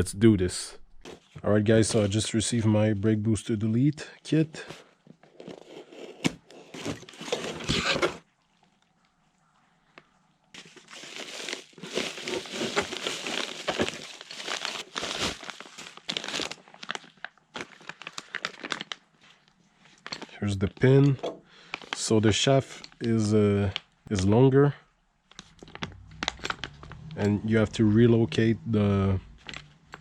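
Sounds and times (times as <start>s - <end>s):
packaging crinkling and tearing: 5.3s - 8.3s, 10.6s - 21.0s, 21.6s - 22.1s, 25.3s - 27.2s.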